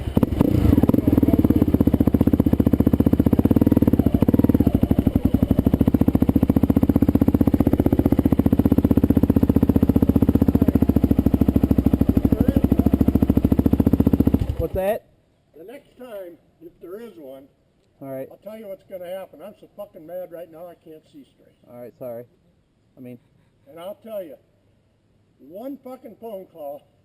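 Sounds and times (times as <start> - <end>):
dirt bike engine idling: 0.0 - 14.9.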